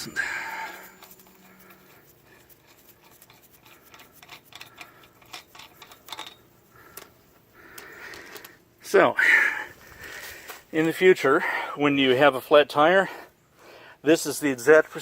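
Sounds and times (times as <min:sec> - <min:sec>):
light scraping: 0:00.0 - 0:07.2
metallic clicks of lug nut: 0:03.0 - 0:08.6.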